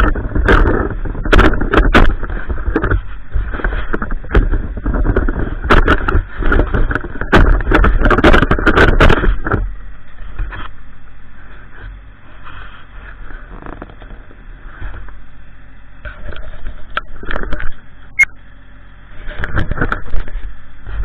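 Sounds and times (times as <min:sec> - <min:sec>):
tractor scraping snow and ice: 0:00.0 - 0:09.5, 0:11.4 - 0:15.2
tractor engine running: 0:00.0 - 0:21.0.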